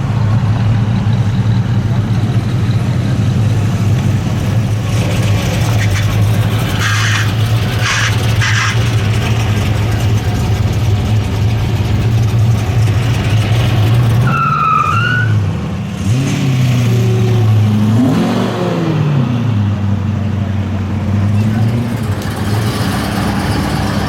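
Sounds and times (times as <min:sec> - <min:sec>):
car engines rumbling and revving: 0:00.0 - 0:24.0.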